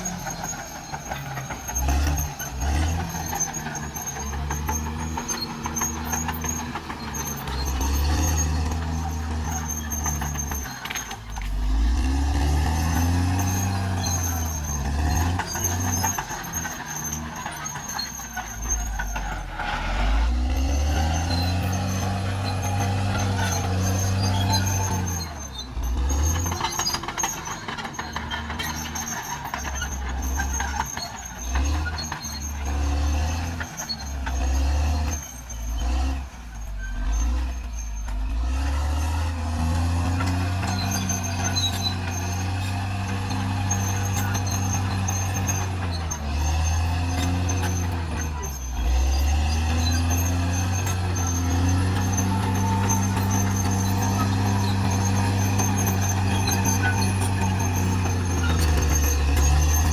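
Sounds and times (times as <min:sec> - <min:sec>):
bulldozer diesel engine under load: 0:00.0 - 0:59.9.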